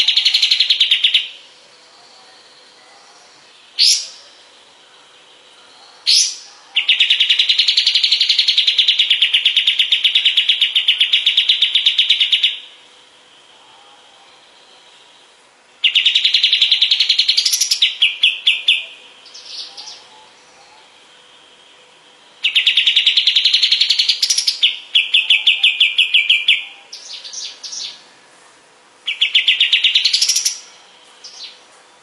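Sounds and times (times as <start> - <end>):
bird trilling: 0.0 - 1.5, 2.4 - 4.4, 5.2 - 12.8, 13.6 - 28.1, 29.0 - 31.6.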